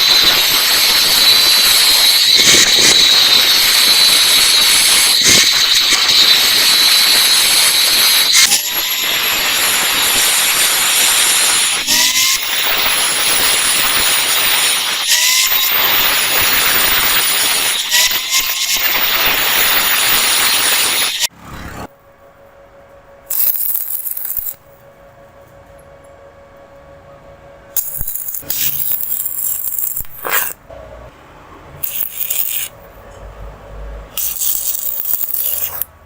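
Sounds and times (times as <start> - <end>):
arc welding hiss: 0.0 - 21.2, 23.3 - 24.6, 31.8 - 32.7.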